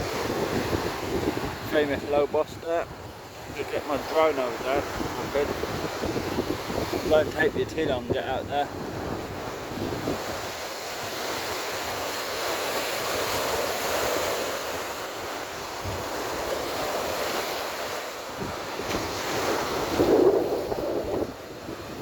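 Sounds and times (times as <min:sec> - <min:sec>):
surf washing on sandy beach: 0:00.0 - 0:22.0
wind noise on microphone: 0:00.0 - 0:22.0.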